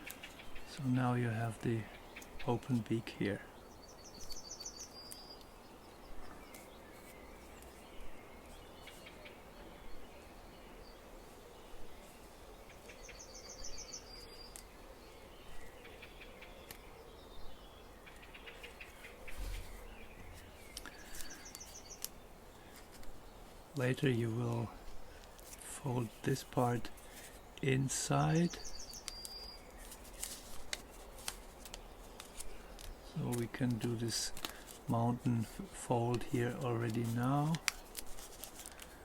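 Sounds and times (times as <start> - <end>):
songbird trilling: 3.6 - 5.6, 27.7 - 29.8
paper rustling and folding: 24.0 - 27.4, 29.0 - 39.0.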